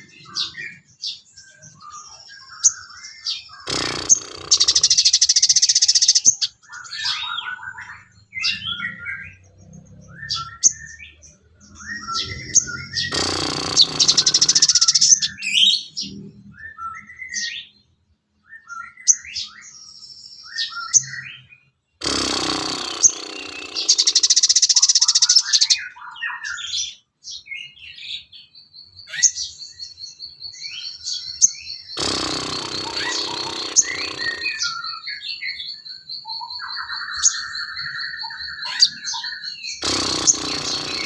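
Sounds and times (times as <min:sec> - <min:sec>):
songbird trilling: 0:00.0 - 0:17.8, 0:22.0 - 0:27.0, 0:28.9 - 0:41.0
songbird chirping: 0:00.0 - 0:41.0.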